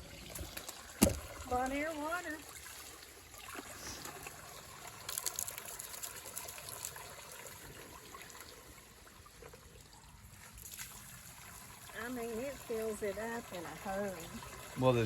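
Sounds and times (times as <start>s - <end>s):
water filling plastic bottle: 0.0s - 9.9s
water splashing: 0.0s - 15.0s.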